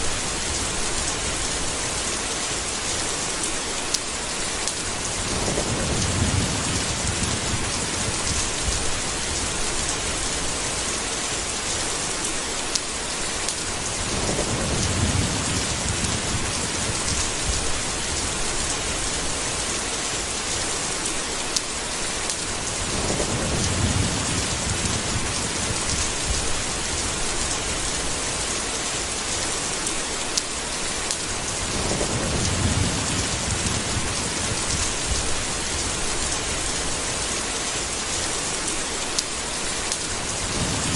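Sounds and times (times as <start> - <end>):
heavy rain falling: 0.0 - 40.9
low roll of thunder: 5.0 - 10.4, 13.9 - 19.6, 22.7 - 28.0, 31.5 - 36.9, 40.3 - 40.9.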